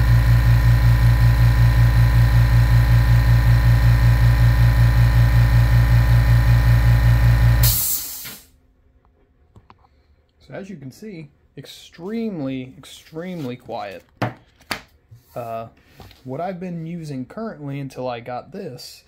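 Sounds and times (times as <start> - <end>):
air compressor running: 0.0 - 8.5
pressure switch cutting out: 0.0 - 8.5.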